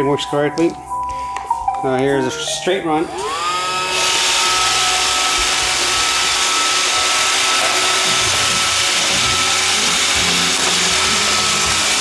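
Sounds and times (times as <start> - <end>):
robot vacuum whirring: 3.0 - 12.0.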